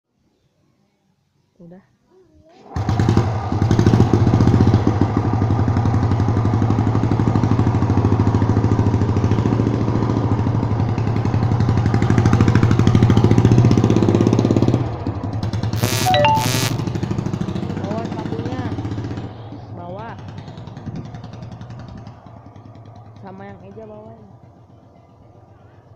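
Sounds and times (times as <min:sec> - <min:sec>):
motorcycle engine running: 0:02.9 - 0:13.9, 0:17.0 - 0:25.9
short sharp noisy bursts: 0:15.8 - 0:16.9.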